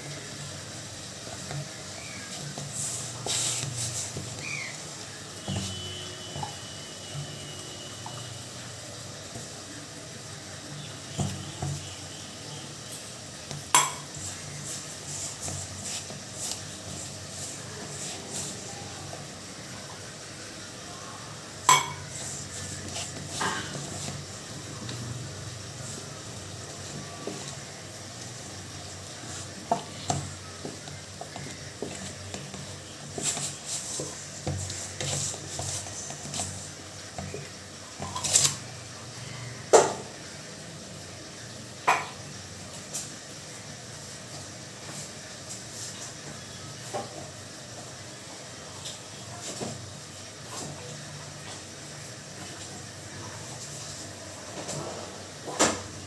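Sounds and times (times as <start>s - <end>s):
utensils and dishes clattering: 12.9s - 18.5s, 21.6s - 24.2s, 38.0s - 38.7s.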